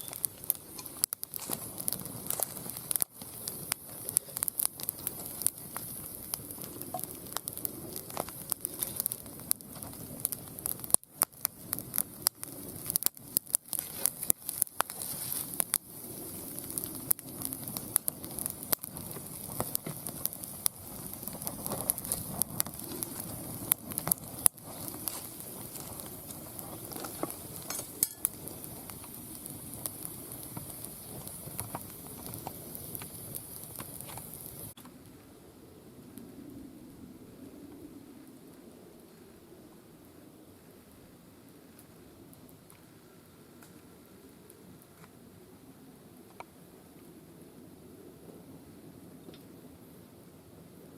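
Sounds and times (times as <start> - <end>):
high hiss of fire: 0.0 - 34.8
firewood crackling and popping: 0.0 - 35.3, 41.5 - 45.4, 46.2 - 47.2.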